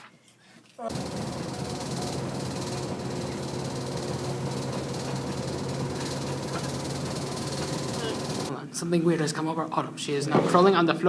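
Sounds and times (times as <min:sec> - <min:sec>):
machine hum with hiss: 0:00.9 - 0:08.5.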